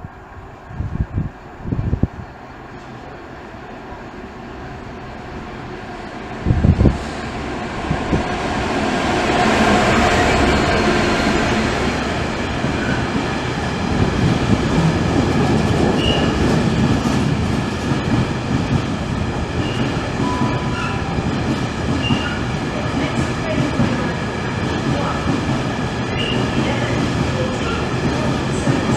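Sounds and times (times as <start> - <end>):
train rumbling past: 0.0 - 28.9.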